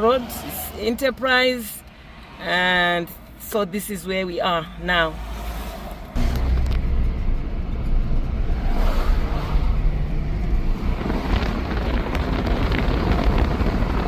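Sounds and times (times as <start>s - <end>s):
car engine and tyres rumbling: 0.0s - 14.0s
wind noise: 6.1s - 14.0s.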